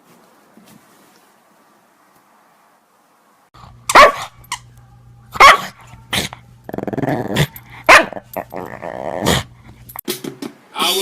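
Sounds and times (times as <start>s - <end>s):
dog barking: 3.9s - 4.4s, 5.4s - 6.3s, 7.8s - 8.4s
dog growling: 6.1s - 9.7s.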